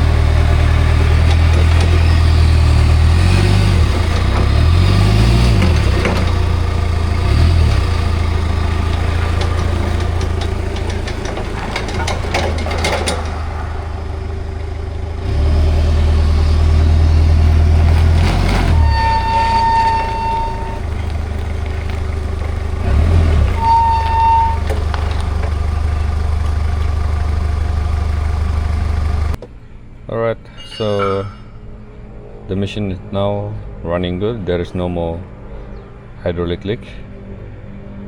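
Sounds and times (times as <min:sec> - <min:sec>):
forklift engine running: 0:00.0 - 0:29.4
clicks and rattles: 0:08.8 - 0:14.0, 0:24.6 - 0:26.9.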